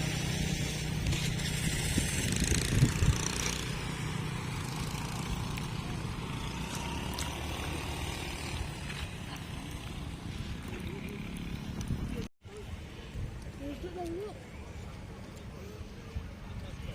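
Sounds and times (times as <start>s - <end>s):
engine running: 0.0s - 12.3s.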